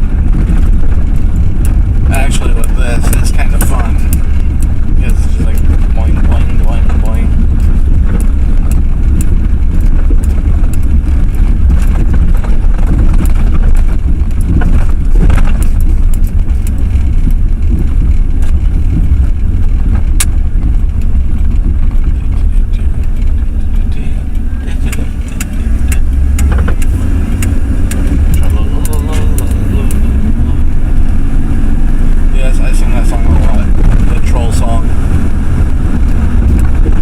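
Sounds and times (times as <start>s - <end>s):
pickup truck cab rumble: 0.0s - 37.0s.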